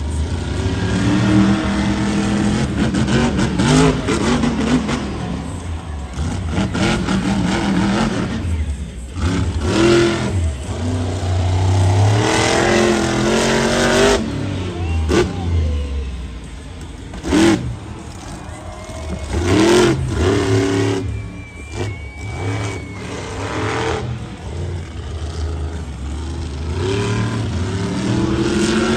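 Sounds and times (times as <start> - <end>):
truck engine revving hard: 0.0 - 28.9.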